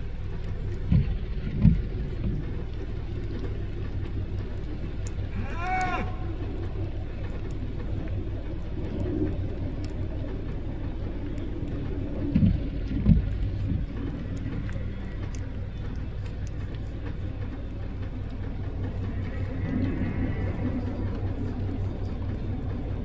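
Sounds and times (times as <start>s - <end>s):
low thuds: 0.0s - 5.3s, 10.2s - 22.9s.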